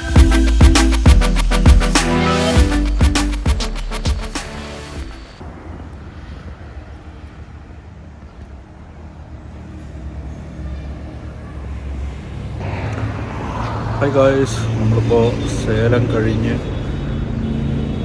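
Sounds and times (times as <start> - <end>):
background music: 0.0 - 5.4
low rumble of motor vehicles: 5.4 - 18.0.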